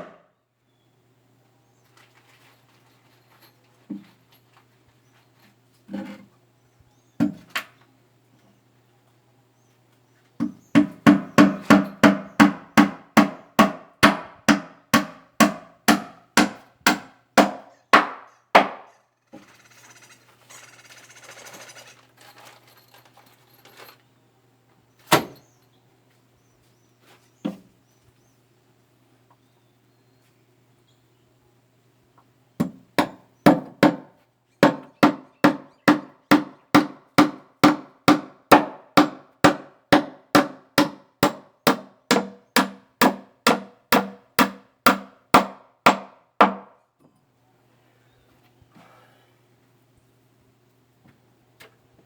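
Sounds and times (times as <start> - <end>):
hammer nailing wooden boards: 10.4 - 18.9, 32.6 - 46.8.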